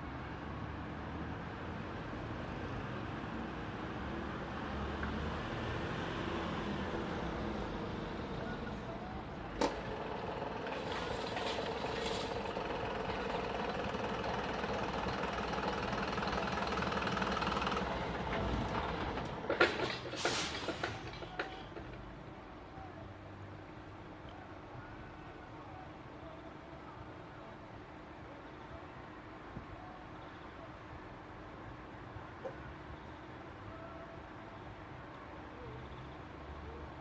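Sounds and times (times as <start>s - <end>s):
vehicle engine running: 6.5s - 21.9s.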